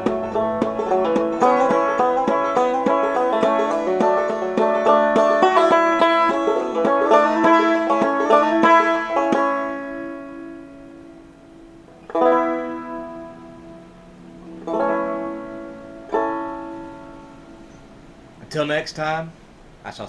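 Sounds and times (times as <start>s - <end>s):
banjo playing: 0.0s - 18.4s.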